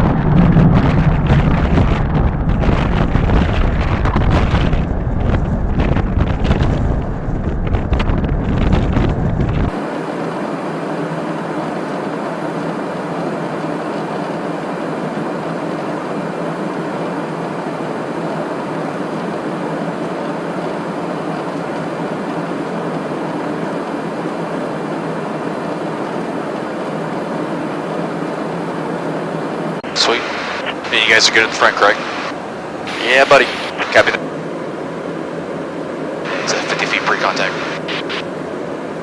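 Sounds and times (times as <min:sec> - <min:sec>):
jet aircraft buffeting rumble: 0:00.0 - 0:39.0
steady hiss of airflow: 0:29.9 - 0:34.2.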